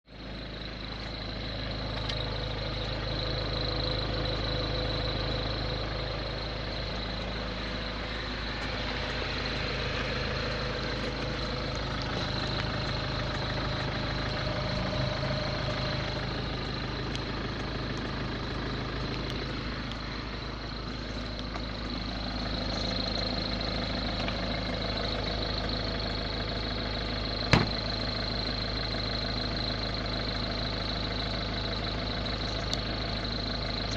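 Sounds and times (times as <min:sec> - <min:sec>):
diesel engine idling: 0:00.0 - 0:33.9
high-pitched whine: 0:00.3 - 0:33.9.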